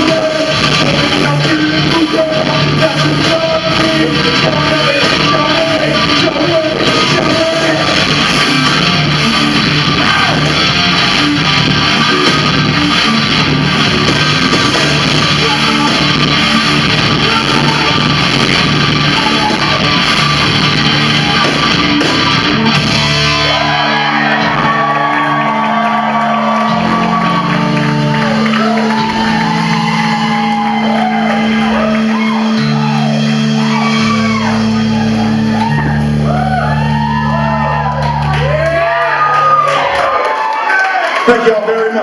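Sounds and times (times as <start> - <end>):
person shouting singing: 0.0 - 8.2, 9.8 - 10.7, 15.1 - 21.6
held bass notes: 0.0 - 40.2
electric guitar: 0.0 - 41.3.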